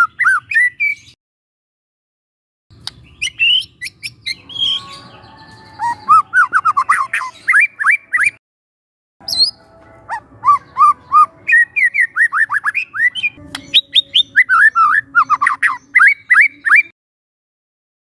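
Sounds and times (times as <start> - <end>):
songbird singing sweeping notes: 2.8 - 8.4, 9.2 - 16.9.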